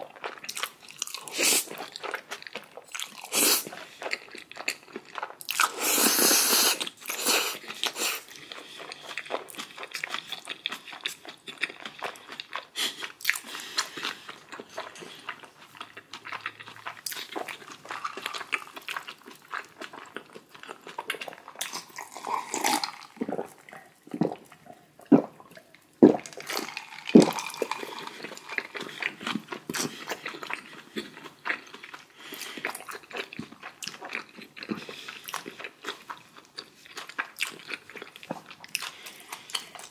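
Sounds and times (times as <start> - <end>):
person chewing crunchy food: 0.0 - 39.9
mouth clicks: 23.2 - 27.5.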